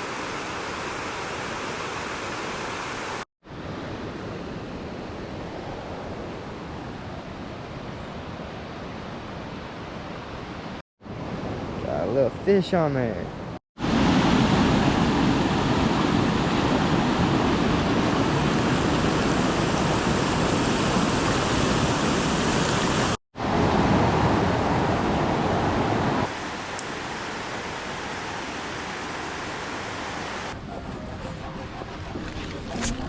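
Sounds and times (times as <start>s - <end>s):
river water rushing: 0.0s - 3.2s, 13.8s - 30.6s.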